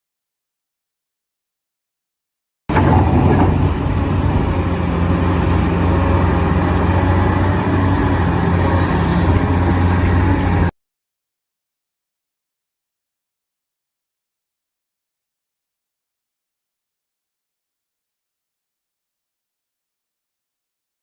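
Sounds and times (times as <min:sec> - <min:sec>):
heavy engine running: 0:02.7 - 0:10.7.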